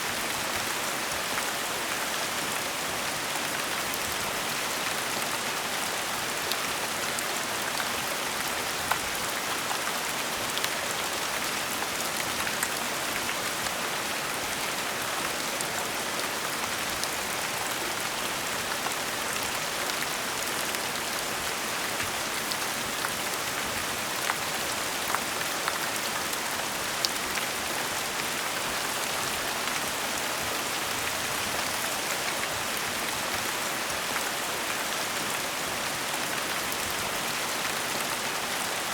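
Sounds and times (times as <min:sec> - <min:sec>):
gentle rain hiss: 0:00.0 - 0:38.9.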